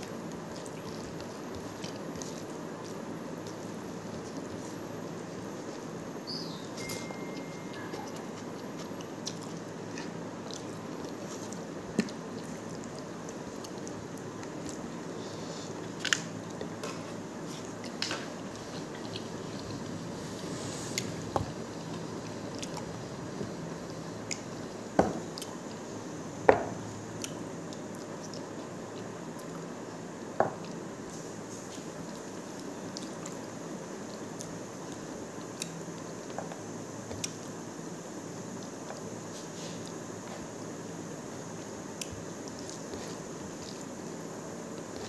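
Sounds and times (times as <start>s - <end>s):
person chewing food: 0.0s - 6.1s, 7.4s - 23.6s, 27.1s - 29.7s, 31.6s - 37.6s, 41.4s - 45.0s.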